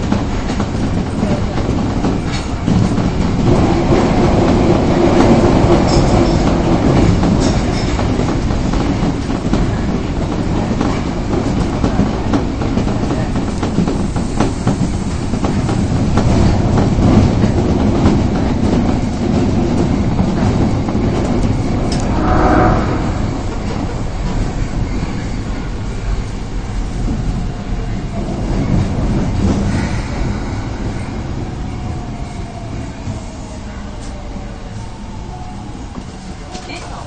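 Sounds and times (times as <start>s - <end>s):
clickety-clack over rail joints: 0.0s - 22.0s, 35.9s - 37.0s
train wheels rumbling on rail: 0.0s - 37.0s.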